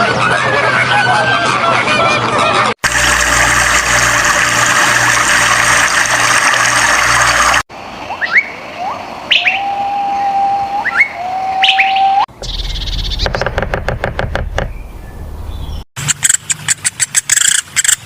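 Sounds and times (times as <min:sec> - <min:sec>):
rushing water: 0:02.8 - 0:09.8
bird whistling: 0:08.2 - 0:13.3.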